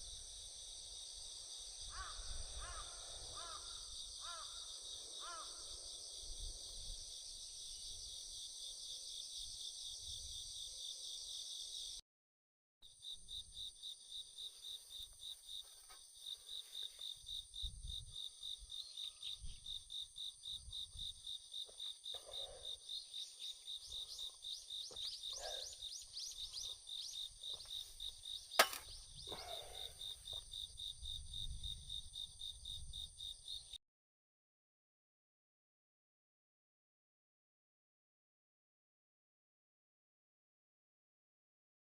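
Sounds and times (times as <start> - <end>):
insects chirping: 0.0 - 12.0, 12.9 - 33.8
sharp crack: 28.5 - 29.0.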